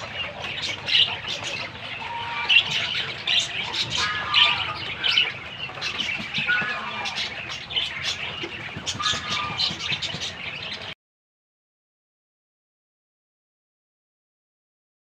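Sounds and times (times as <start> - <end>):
budgerigars chirping and warbling: 0.0 - 11.0.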